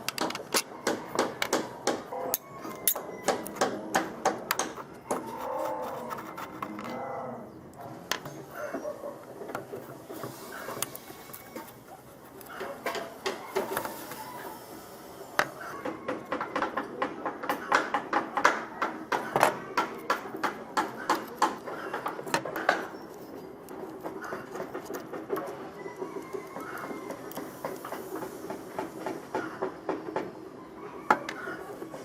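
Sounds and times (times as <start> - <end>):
hand tools clicking on metal: 0.0 - 7.0, 19.1 - 25.6.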